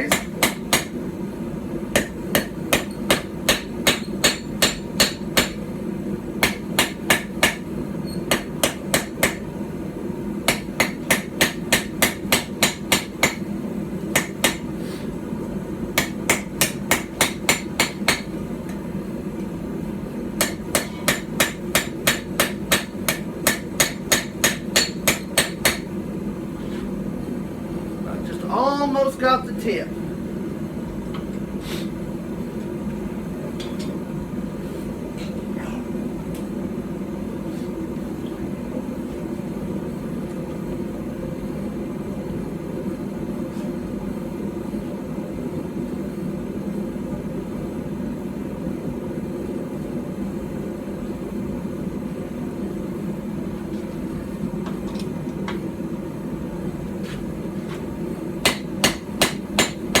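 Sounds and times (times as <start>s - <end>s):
hammer striking hot steel: 0.0s - 1.0s, 1.9s - 5.7s, 6.4s - 9.5s, 10.4s - 13.5s, 14.1s - 14.7s, 16.0s - 18.4s, 20.4s - 25.9s, 58.4s - 60.0s.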